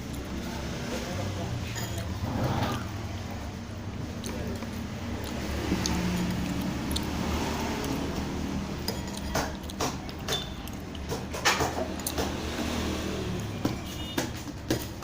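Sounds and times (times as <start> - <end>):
spoon clinking against bowl: 10.3 - 10.7.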